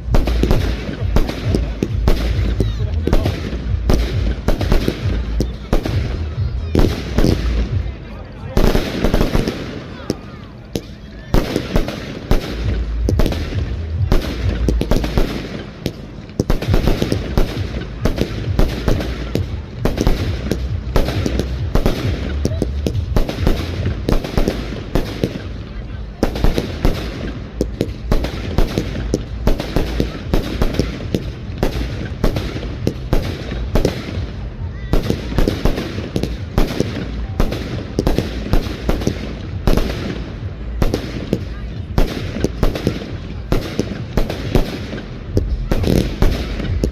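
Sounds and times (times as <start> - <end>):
fireworks bangs and crackling: 0.0 - 46.9
low rumble: 12.5 - 35.4.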